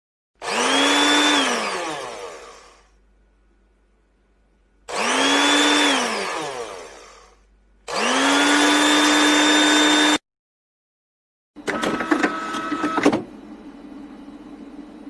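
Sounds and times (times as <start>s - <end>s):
appliance electric motor whining: 0.4s - 2.9s, 4.9s - 10.2s, 11.6s - 13.1s.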